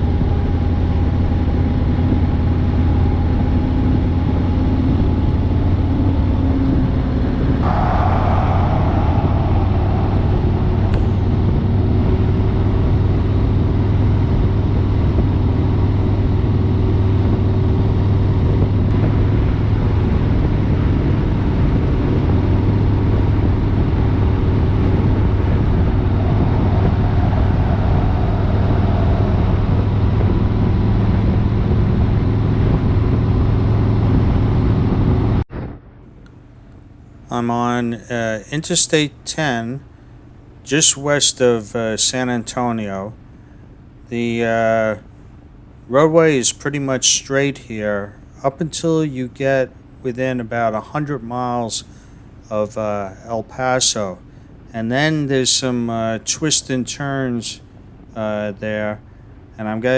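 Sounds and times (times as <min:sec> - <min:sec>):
wind noise on microphone: 0:00.0 - 0:37.3.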